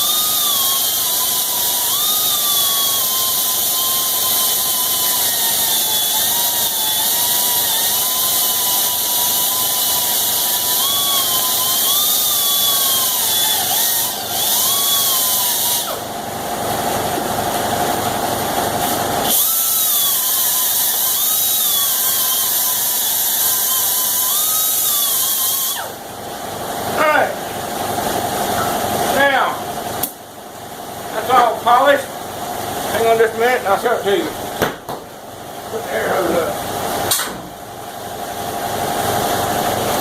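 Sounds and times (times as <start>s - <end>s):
air grinder whining on steel: 0.0s - 30.2s.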